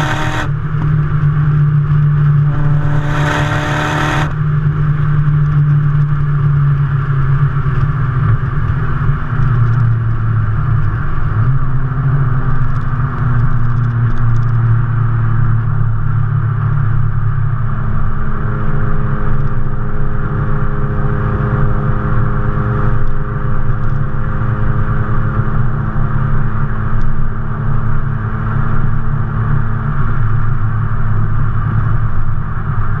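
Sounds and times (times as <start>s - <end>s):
car engine running steadily: 0.0s - 33.0s.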